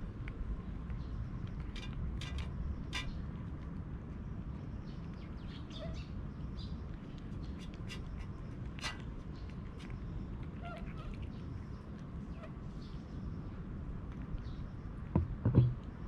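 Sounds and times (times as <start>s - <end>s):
cats chewing clicks: 0.1s - 5.3s, 6.8s - 12.2s.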